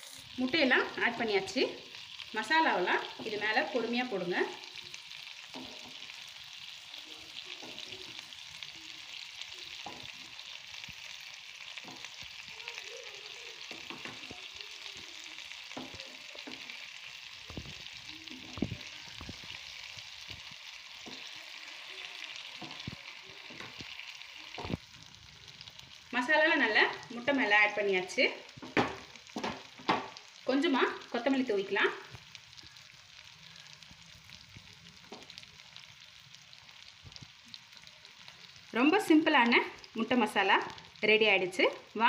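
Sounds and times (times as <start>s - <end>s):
food sizzling in a pan: 0.0s - 42.0s
spatula scraping and tapping a pan: 28.6s - 30.2s.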